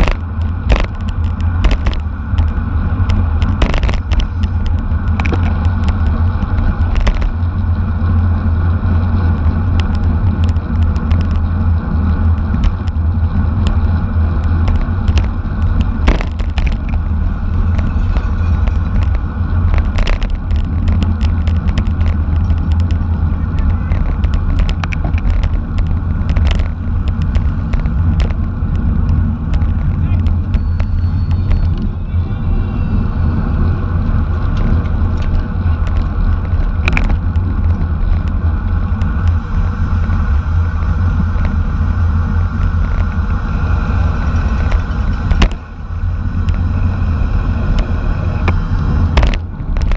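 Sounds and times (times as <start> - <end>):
bicycle clicks and rattles: 0.0 - 32.0, 33.6 - 49.9
road and tyre noise: 0.0 - 49.9
wind rumble on microphone: 0.0 - 49.9.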